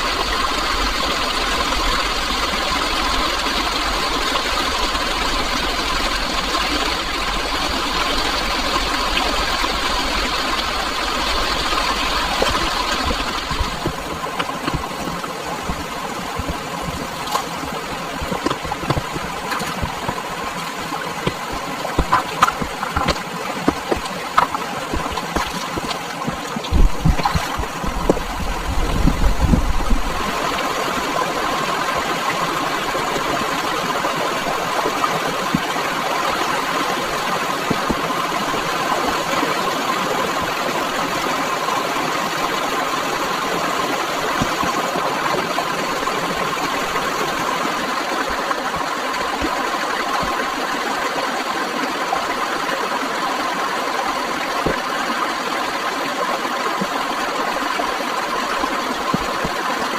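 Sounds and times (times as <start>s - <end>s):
scattered knocks and clicks: 18.2s - 28.4s.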